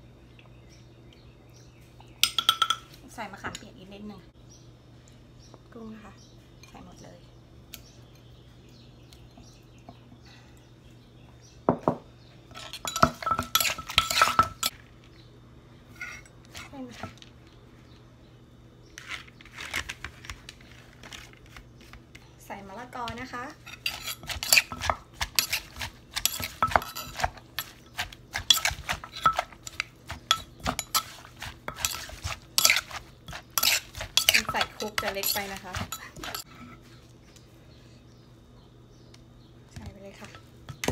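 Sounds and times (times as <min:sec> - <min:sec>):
metal spoon clinking and scraping: 0:12.5 - 0:14.7, 0:15.9 - 0:17.1, 0:23.6 - 0:36.7
wooden pestle pounding in mortar: 0:23.9 - 0:36.4.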